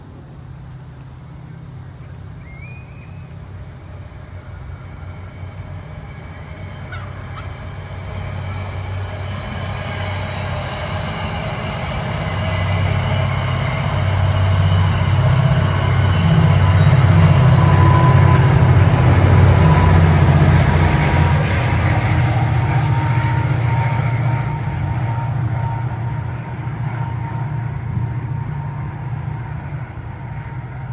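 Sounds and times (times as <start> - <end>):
train engine rumbling: 0.0 - 30.9.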